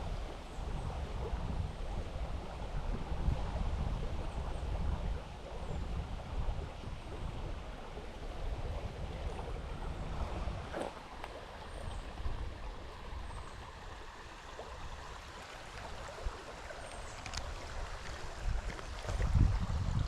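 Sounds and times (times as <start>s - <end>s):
wind rumble on microphone: 0.0s - 20.0s
river water rushing over rocks: 9.6s - 19.8s.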